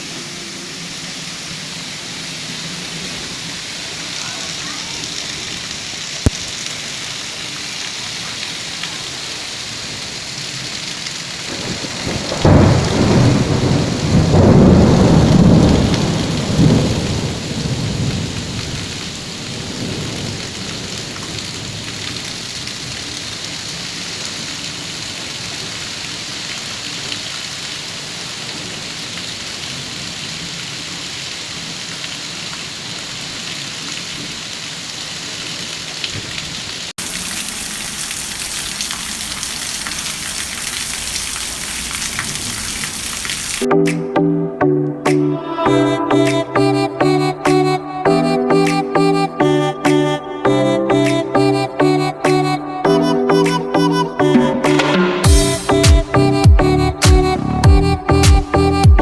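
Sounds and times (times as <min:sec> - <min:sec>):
heavy rain falling: 0:00.0 - 0:43.9, 0:51.0 - 0:59.0
rolling thunder: 0:11.5 - 0:22.4.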